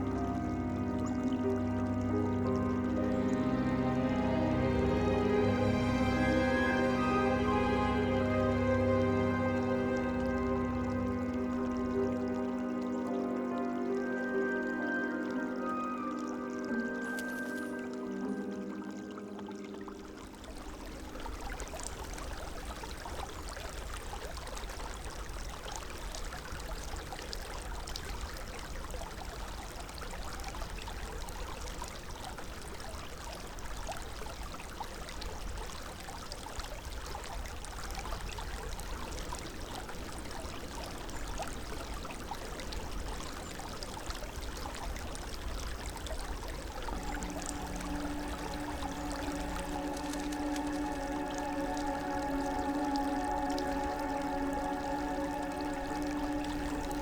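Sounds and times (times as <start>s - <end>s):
music: 0.0s - 21.7s, 46.9s - 57.0s
creek water rushing: 0.0s - 57.0s.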